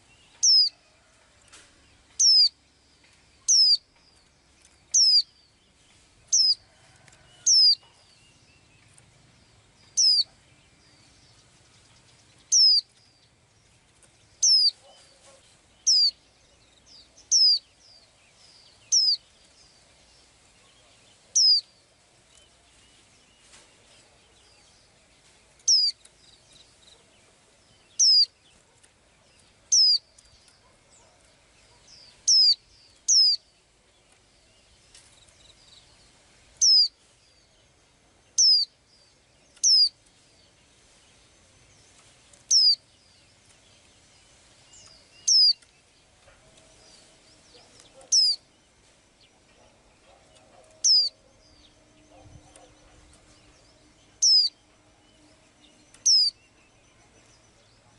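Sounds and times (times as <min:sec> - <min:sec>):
songbird high downward call: 0:00.0 - 0:00.9, 0:02.2 - 0:02.6, 0:03.4 - 0:03.8, 0:04.9 - 0:05.4, 0:06.3 - 0:08.6, 0:09.8 - 0:11.2, 0:12.4 - 0:12.9, 0:14.4 - 0:16.2, 0:16.9 - 0:19.3, 0:20.6 - 0:21.8, 0:25.6 - 0:26.1, 0:27.8 - 0:28.4, 0:29.7 - 0:31.1, 0:31.7 - 0:33.5, 0:36.6 - 0:37.0, 0:38.4 - 0:38.7, 0:39.6 - 0:40.0, 0:42.5 - 0:43.2, 0:44.7 - 0:45.8, 0:46.6 - 0:48.5, 0:49.6 - 0:57.9.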